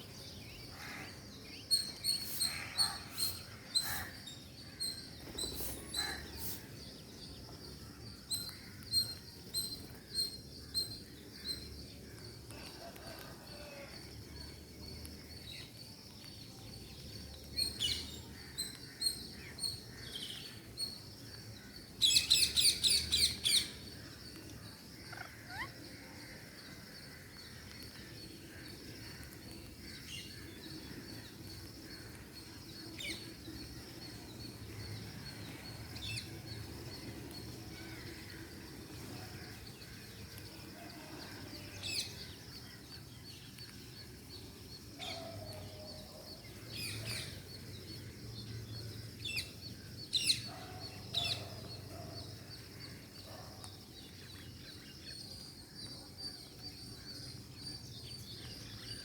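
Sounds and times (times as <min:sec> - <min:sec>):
parakeets calling: 0:25.1 - 0:25.7.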